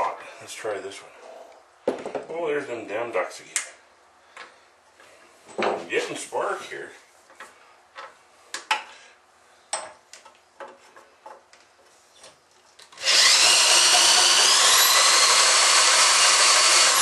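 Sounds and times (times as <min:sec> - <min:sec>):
electric drill motor whining: 0:12.9 - 0:17.0.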